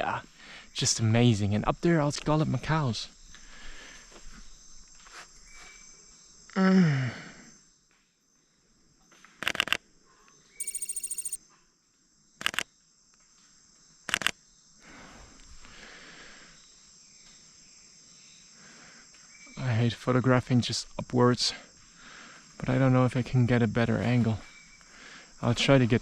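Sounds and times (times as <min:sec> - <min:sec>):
high electronic beeping: 0:10.6 - 0:11.4.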